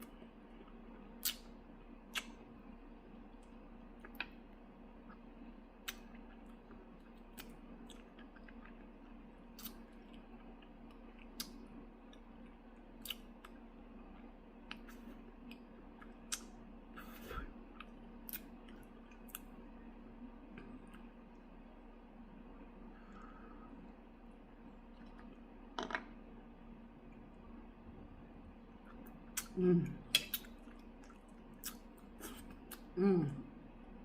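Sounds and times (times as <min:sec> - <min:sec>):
mouth chewing with clicks and smacks: 0:00.0 - 0:19.6, 0:28.8 - 0:33.0.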